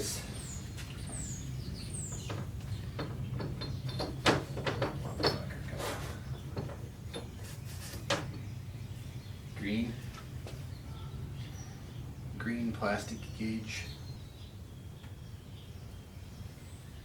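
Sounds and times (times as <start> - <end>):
steady low hum: 0.0 - 17.0
light clicks and knocks: 2.1 - 8.4.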